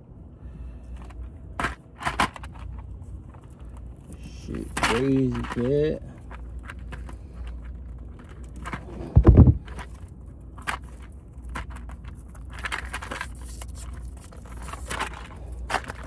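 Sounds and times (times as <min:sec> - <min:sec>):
wire connectors clicking and rustling: 0:00.9 - 0:16.0
heavy thump: 0:08.8 - 0:09.8.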